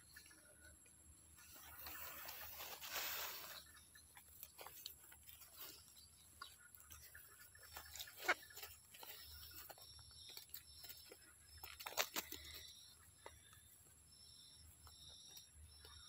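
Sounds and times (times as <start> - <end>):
faint rustling: 1.4 - 14.0.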